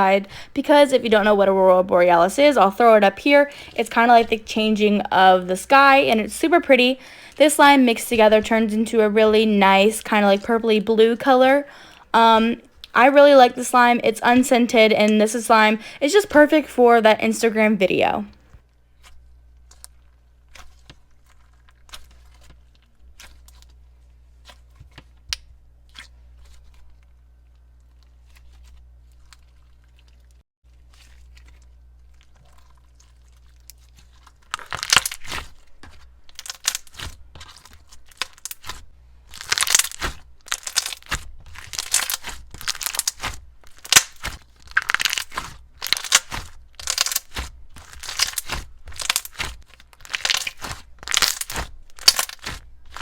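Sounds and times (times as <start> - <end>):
slime crackling and popping: 31.1 - 53.0.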